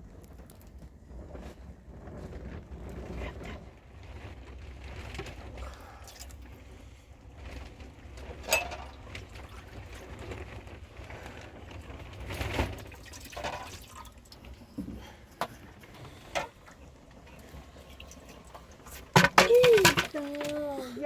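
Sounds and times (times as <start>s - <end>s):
water splashing and pouring: 5.6s - 7.0s, 7.7s - 20.8s.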